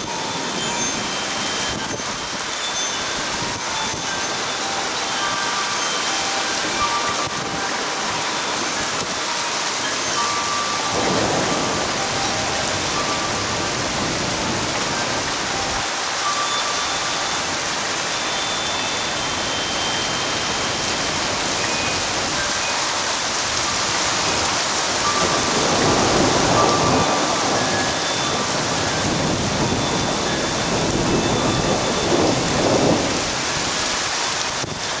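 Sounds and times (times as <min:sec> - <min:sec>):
heavy rain falling: 0:00.0 - 0:35.0
thunder rumbling: 0:10.8 - 0:15.8, 0:24.2 - 0:33.5.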